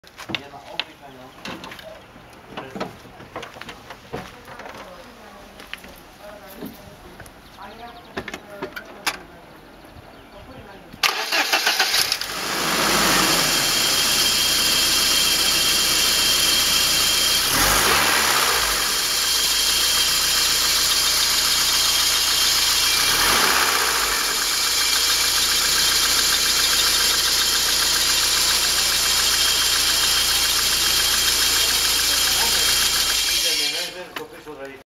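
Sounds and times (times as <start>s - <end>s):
car engine idling: 11.0s - 34.0s.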